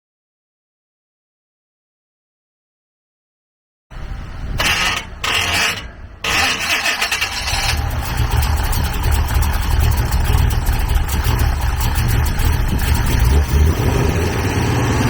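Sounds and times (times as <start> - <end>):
car engine idling: 4.0 - 15.0
starter motor cranking: 4.5 - 13.4.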